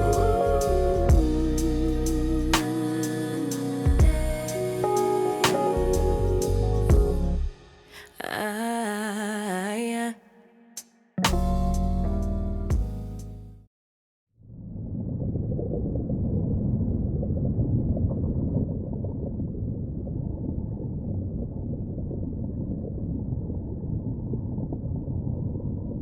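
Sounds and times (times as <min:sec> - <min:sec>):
steady low rumbling noise: 0:00.0 - 0:07.6, 0:11.3 - 0:13.4.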